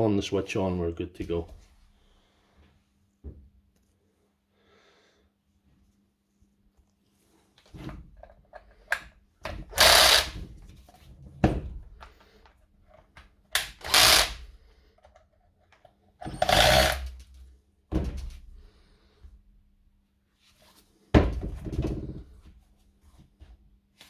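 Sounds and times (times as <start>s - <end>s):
power driver running in bursts: 9.8s - 10.4s, 13.8s - 14.4s, 16.3s - 17.2s.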